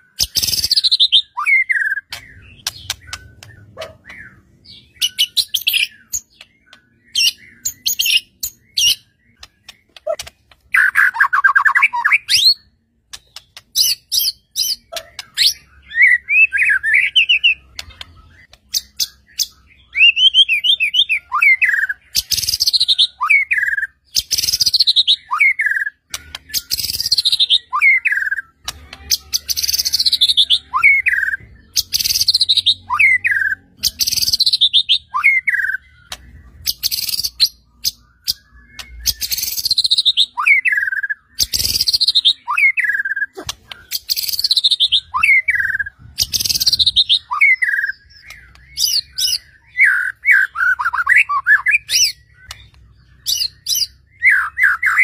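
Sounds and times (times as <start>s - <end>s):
bird clicks and warbled trills: 1.7s - 4.2s, 5.0s - 12.4s, 13.0s - 15.7s, 23.6s - 32.5s, 33.3s - 55.0s.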